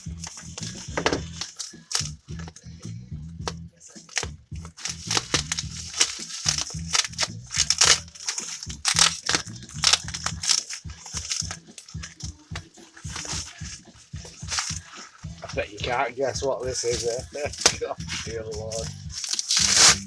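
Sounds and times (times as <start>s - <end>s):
packaging crackling and crinkling: 0.0s - 2.2s, 4.1s - 12.4s, 13.0s - 15.0s, 16.8s - 17.9s, 18.6s - 20.0s
packaging tearing: 0.0s - 2.2s, 4.1s - 12.2s, 13.1s - 14.8s, 16.8s - 17.8s, 18.7s - 20.0s.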